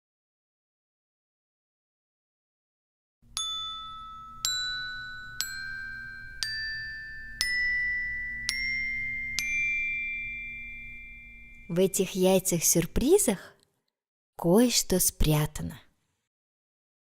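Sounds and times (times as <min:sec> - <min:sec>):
struck chime notes rising: 0:03.4 - 0:11.8.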